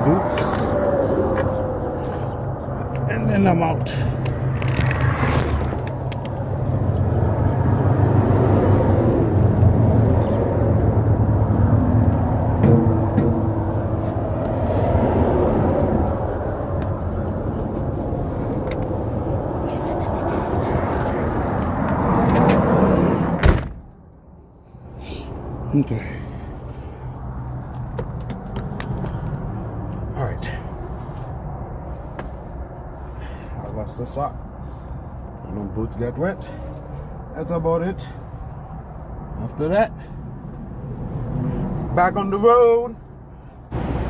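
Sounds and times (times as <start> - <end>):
vehicle door slamming: 23.3 - 23.9.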